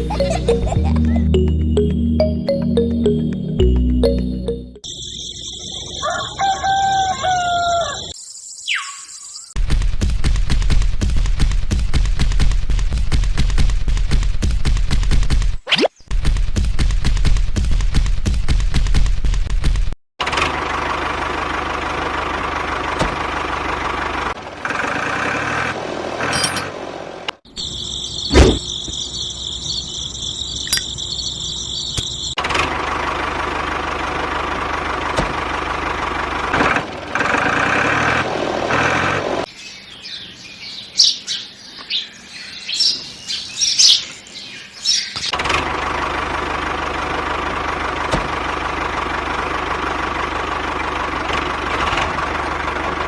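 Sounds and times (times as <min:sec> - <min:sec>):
short high chirps: 0:30.7 - 0:30.9.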